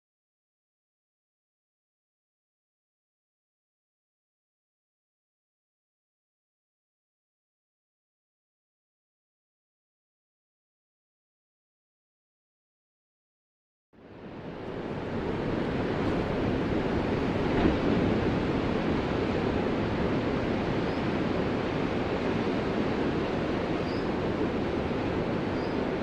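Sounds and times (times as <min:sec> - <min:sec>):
ocean waves breaking: 0:14.0 - 0:26.0.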